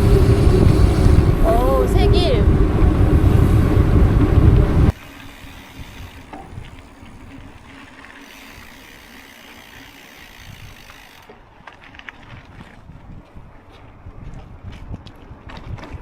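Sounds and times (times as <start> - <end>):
bike tyres rumbling on trail: 0.0 - 16.0
bike clicks and rattles: 4.9 - 12.8.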